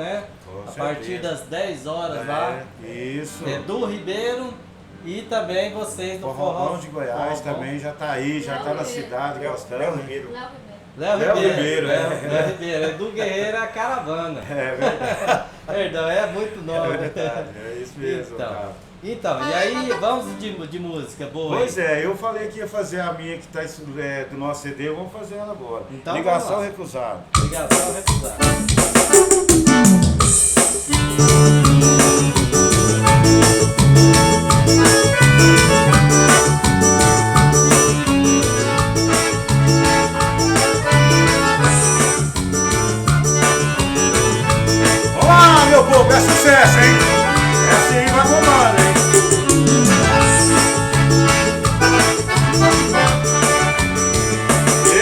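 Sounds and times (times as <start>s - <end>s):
band playing instrumental music: 19.4s - 20.4s, 27.4s - 55.0s
accordion: 19.4s - 20.7s, 27.8s - 55.0s
percussion beat: 27.4s - 55.0s
bass line: 27.5s - 55.0s.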